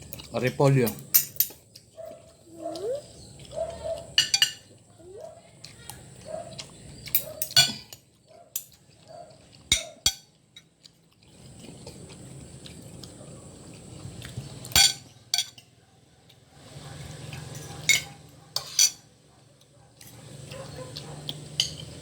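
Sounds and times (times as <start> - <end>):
utensils clinking against dishes: 0.0 - 1.9, 3.8 - 4.8, 7.1 - 8.8, 9.7 - 10.7, 14.7 - 15.7, 17.3 - 19.1, 20.0 - 22.0.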